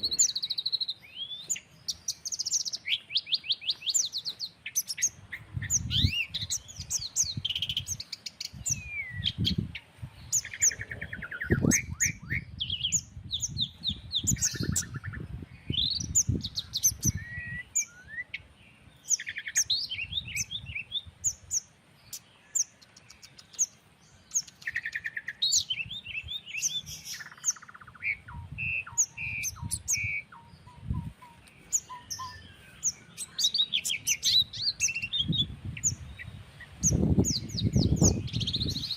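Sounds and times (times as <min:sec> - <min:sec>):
songbirds chirping and trilling: 0:00.0 - 0:38.9
wind rumble on microphone: 0:05.1 - 0:19.0, 0:19.6 - 0:21.6, 0:27.9 - 0:32.6, 0:34.0 - 0:38.9.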